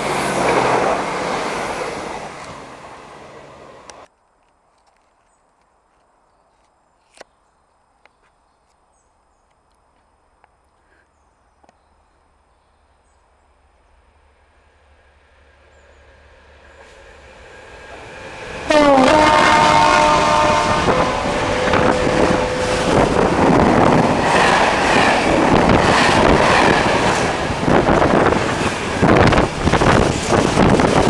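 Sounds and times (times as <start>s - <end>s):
diesel locomotive rumble: 14.2s - 31.0s
train horn: 18.6s - 23.2s.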